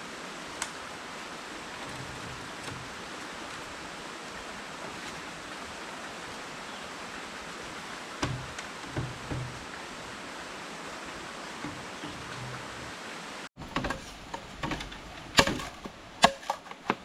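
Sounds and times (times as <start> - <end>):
sharp knocks: 8.2 - 9.7, 13.6 - 16.6.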